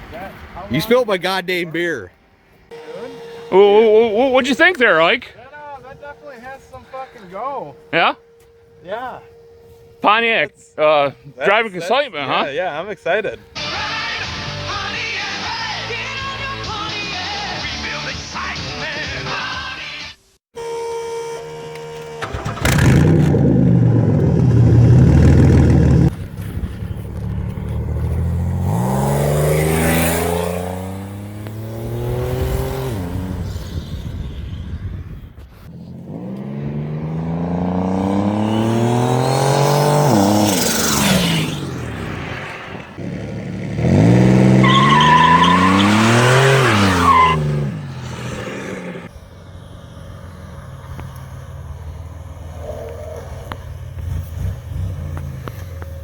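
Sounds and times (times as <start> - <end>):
engine accelerating hard: 22.2 - 35.0, 35.7 - 56.0.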